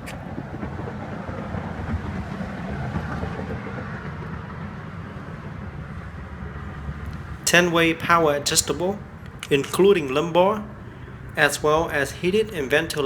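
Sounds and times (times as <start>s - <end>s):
low vehicle rumble: 6.6s - 13.0s.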